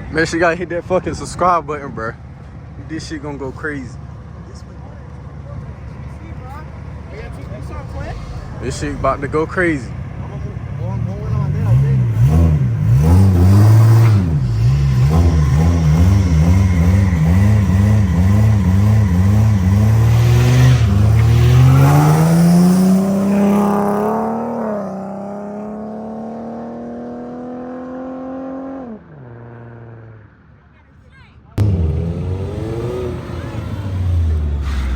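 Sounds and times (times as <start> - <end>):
car engines revving: 0.0 - 30.5, 31.6 - 34.9
car accelerating away: 7.1 - 30.2, 31.6 - 34.9.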